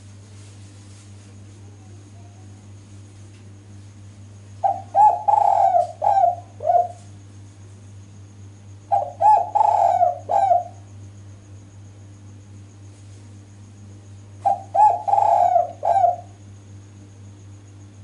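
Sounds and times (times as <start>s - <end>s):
dove cooing: 4.6s - 7.1s, 8.9s - 10.8s, 14.4s - 16.4s.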